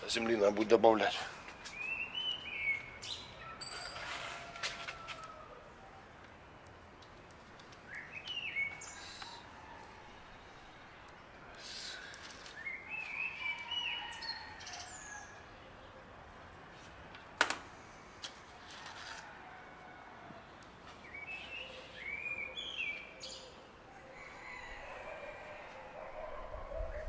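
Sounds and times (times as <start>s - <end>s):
birds chirping: 0.0s - 3.8s, 7.0s - 16.2s, 21.0s - 27.0s.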